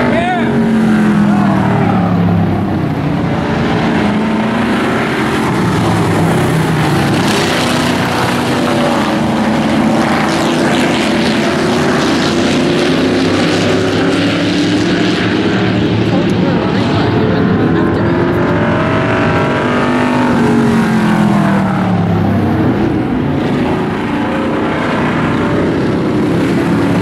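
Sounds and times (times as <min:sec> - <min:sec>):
race truck engines: 0:00.0 - 0:27.0.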